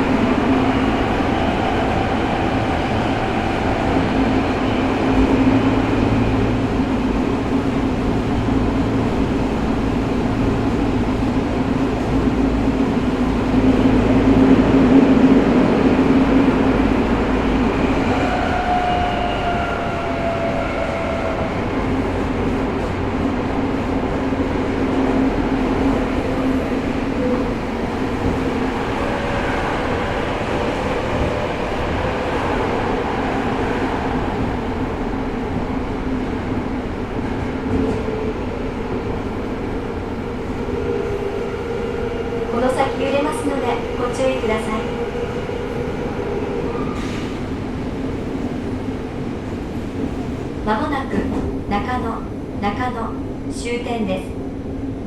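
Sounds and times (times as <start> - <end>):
subway car wheels rumbling: 0.0 - 55.0.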